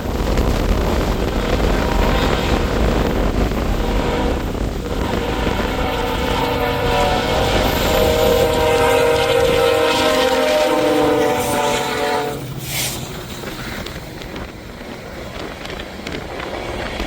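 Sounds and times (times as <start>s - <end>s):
low rumble of train: 0.0s - 17.0s
locomotive horn chord: 5.0s - 12.5s.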